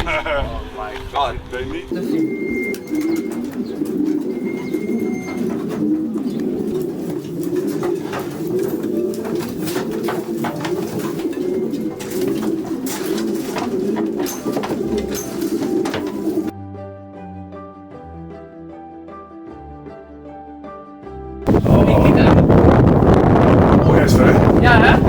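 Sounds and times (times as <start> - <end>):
pigeons cooing: 1.8 - 16.5, 23.9 - 25.0.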